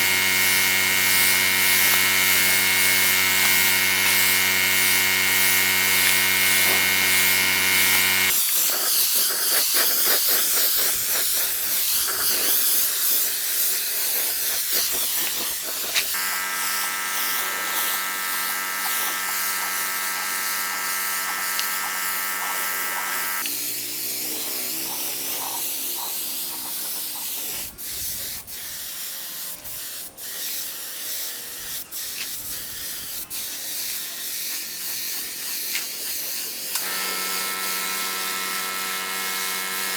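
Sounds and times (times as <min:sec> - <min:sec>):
power tool motor buzzing: 0:00.0 - 0:08.5, 0:14.3 - 0:26.9, 0:36.6 - 0:39.9.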